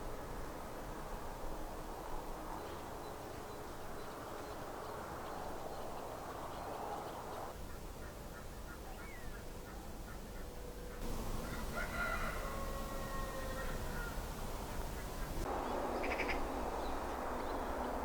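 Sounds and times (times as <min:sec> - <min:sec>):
faint bird calls: 0:07.0 - 0:17.0.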